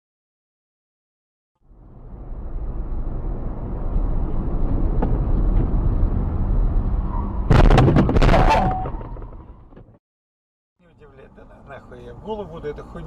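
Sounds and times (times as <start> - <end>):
car engine and road rumble: 1.6 - 10.0, 10.8 - 13.0
vehicle collision impact: 7.4 - 10.0.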